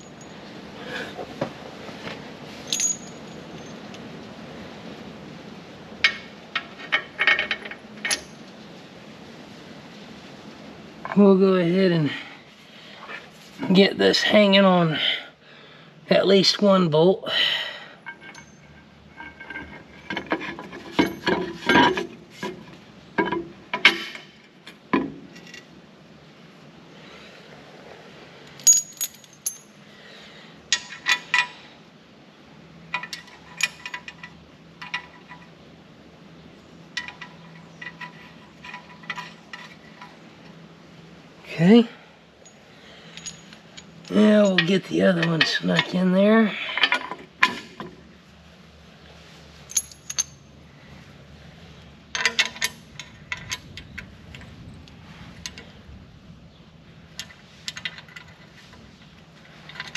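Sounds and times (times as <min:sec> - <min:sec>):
bolts and nuts clinking on steel: 0:00.0 - 0:04.1, 0:05.9 - 0:08.8, 0:17.8 - 0:25.8, 0:28.4 - 0:29.8, 0:30.6 - 0:31.7, 0:32.8 - 0:35.7, 0:36.8 - 0:40.8, 0:42.3 - 0:48.4, 0:49.1 - 0:50.7, 0:51.8 - 0:55.7, 0:57.0 - 0:59.9.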